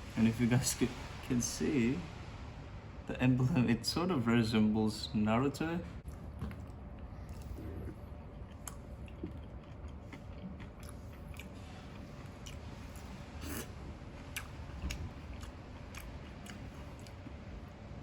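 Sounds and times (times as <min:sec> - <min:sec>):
low background hum: 0:00.0 - 0:18.0
person chewing food: 0:06.0 - 0:17.7.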